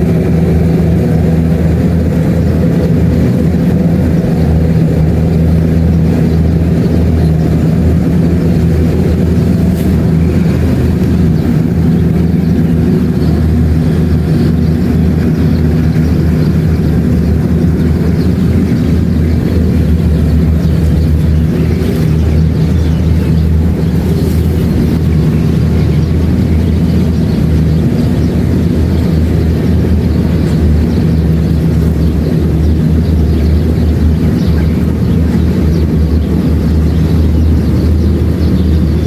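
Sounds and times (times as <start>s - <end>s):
combine harvester engine humming: 0.0s - 39.0s.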